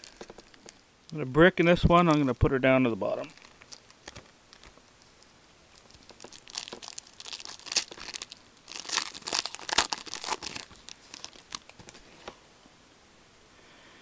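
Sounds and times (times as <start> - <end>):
plastic wrapper tearing and crinkling: 0.0 - 1.2, 3.2 - 12.0.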